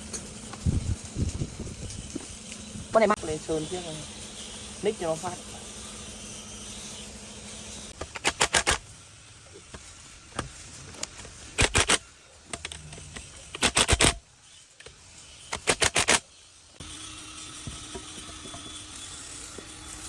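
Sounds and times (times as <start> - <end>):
ratchet wrench clicking: 7.8 - 8.8, 11.0 - 16.3.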